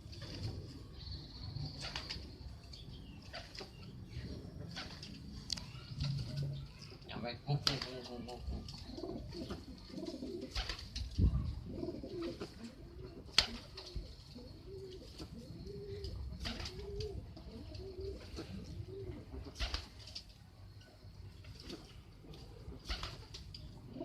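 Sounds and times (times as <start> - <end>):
pigeon cooing: 8.5 - 10.7, 11.3 - 19.8, 22.3 - 24.0.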